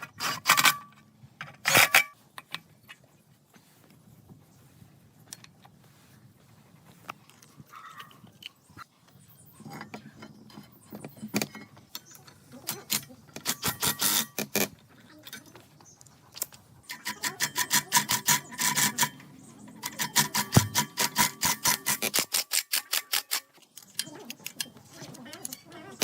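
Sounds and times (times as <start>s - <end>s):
hand tool scraping strokes: 19.9s - 22.4s.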